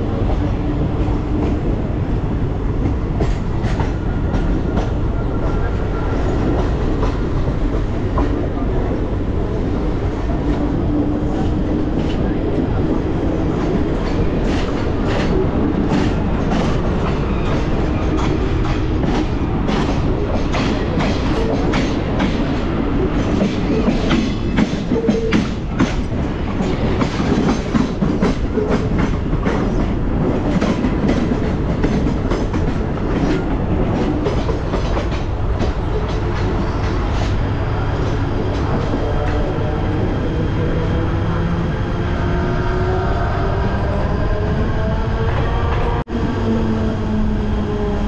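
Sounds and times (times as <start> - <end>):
train wheels rumbling on rail: 0.0 - 48.0
wheels clickety-clack over joints: 2.8 - 5.6, 13.6 - 37.4.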